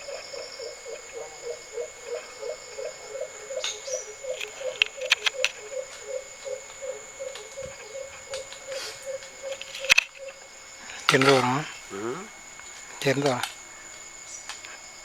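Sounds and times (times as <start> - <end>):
frog croaking: 0.0 - 14.8
crickets trilling: 0.0 - 15.0
sharp clicks: 3.7 - 6.0, 7.3 - 10.4.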